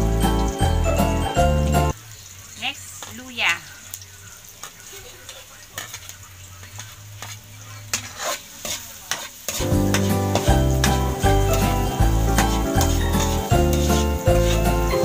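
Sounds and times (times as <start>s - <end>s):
food sizzling in oil: 0.0s - 15.0s
metal spoon scraping and stirring: 5.3s - 15.0s
music with heavy beat: 9.6s - 15.0s.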